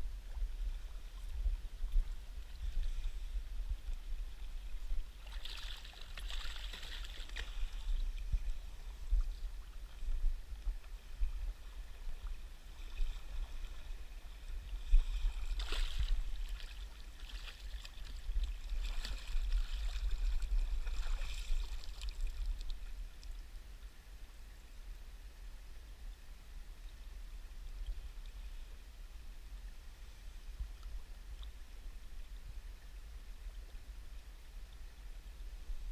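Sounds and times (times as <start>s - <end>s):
river water flowing: 0.0s - 23.4s.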